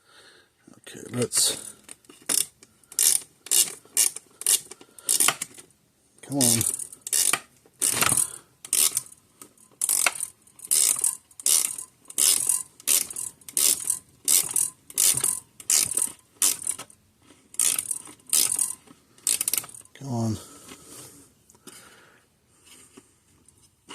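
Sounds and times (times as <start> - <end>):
hand ratchet clicking: 1.6 - 5.6, 6.4 - 19.9.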